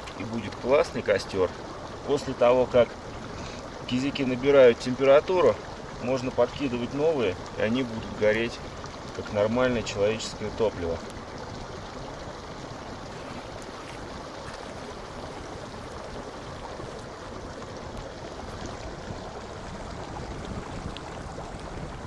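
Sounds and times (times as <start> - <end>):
fire crackles: 0.0 - 22.0
fire rushing: 11.0 - 22.0.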